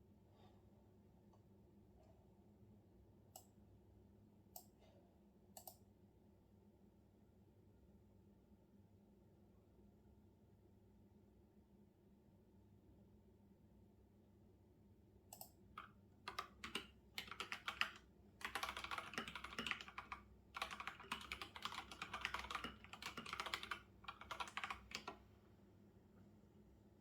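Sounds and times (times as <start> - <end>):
typing on computer keyboard: 15.4 - 25.2.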